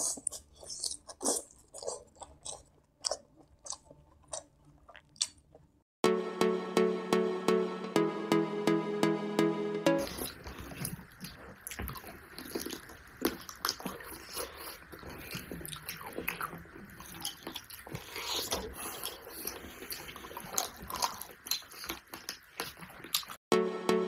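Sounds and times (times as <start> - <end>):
people chewing food: 0.0 - 5.8, 10.1 - 23.4.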